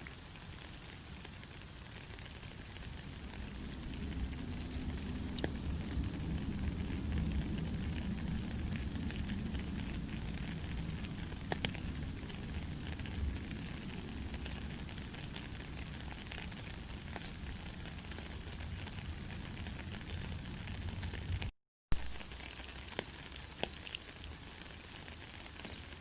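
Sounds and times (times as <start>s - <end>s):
low rumble: 2.9s - 16.0s.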